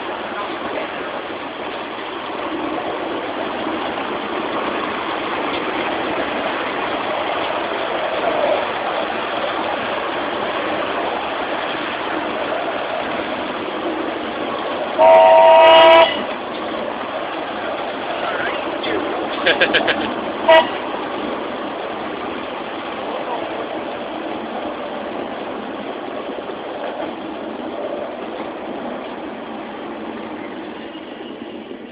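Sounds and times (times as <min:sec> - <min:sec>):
miniature train rumbling on track: 0:00.0 - 0:31.9
train whistle blast: 0:15.0 - 0:16.2, 0:20.5 - 0:20.8.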